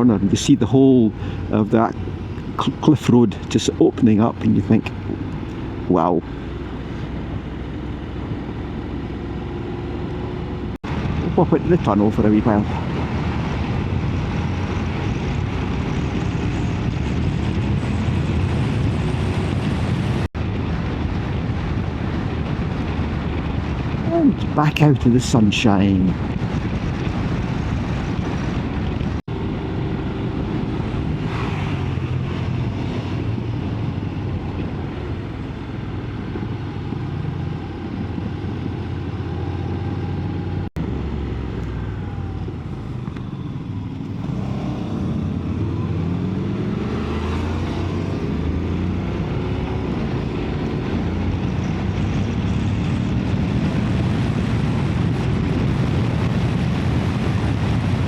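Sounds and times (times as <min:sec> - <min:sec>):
wind rushing over microphone: 0:00.0 - 0:58.0
motorcycle engine revving: 0:26.2 - 0:58.0.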